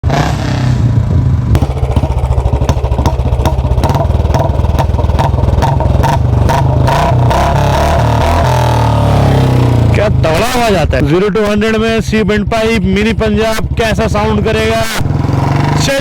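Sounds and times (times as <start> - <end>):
loud motorcycle engine: 0.0 - 16.0
exhaust pops and crackles: 1.5 - 7.5.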